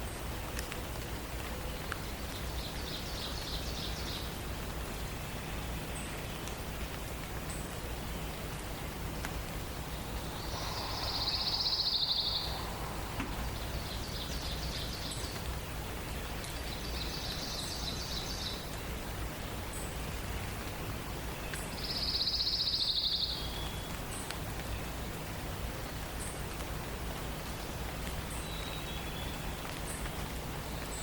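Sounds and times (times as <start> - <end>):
background hiss: 0.0 - 31.0
songbird trilling: 9.8 - 15.3.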